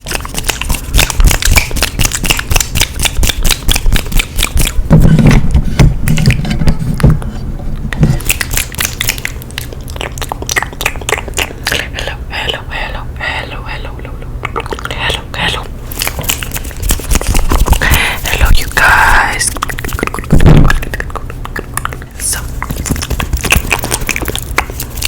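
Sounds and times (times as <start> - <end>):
wet mouth clicks and pops: 0.0 - 4.9, 8.0 - 12.2, 14.1 - 25.0.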